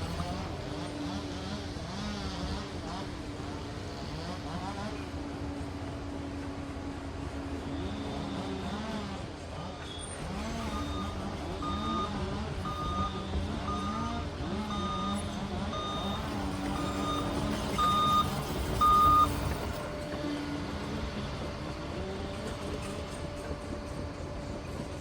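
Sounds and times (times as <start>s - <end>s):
dozer diesel engine running: 0.0s - 25.0s
reversing alarm beeping: 10.4s - 20.1s.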